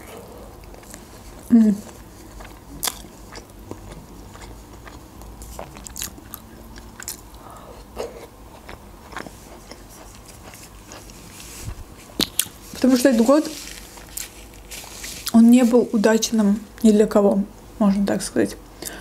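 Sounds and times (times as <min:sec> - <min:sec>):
person chewing: 0:00.0 - 0:15.4.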